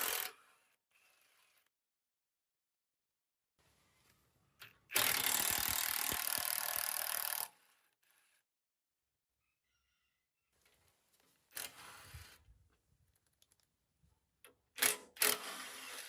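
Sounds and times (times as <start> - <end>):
power tool rattling: 4.9 - 7.5.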